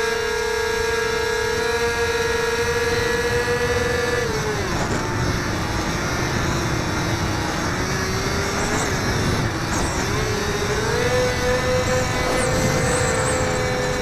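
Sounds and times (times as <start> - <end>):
model plane motor whining: 0.0 - 14.0
low wind rush: 1.5 - 14.0.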